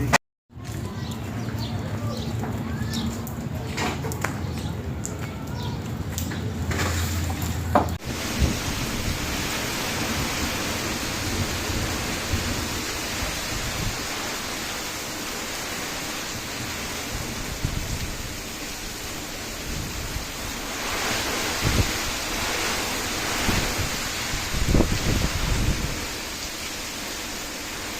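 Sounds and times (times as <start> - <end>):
heavy rain pouring: 0.7 - 27.9
wind rumbling on microphone: 5.9 - 27.9.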